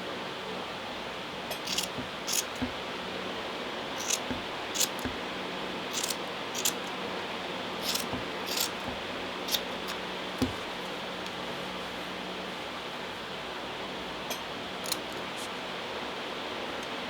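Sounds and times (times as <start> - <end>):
scissors snipping yarn: 1.6 - 2.8, 4.0 - 5.2, 5.9 - 6.9, 7.8 - 10.7.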